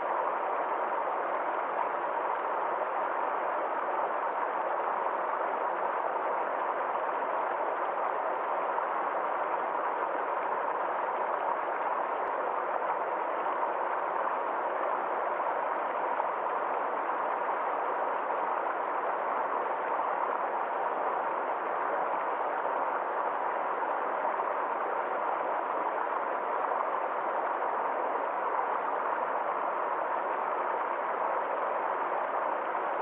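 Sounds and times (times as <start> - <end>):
small stream flowing: 0.0 - 33.0.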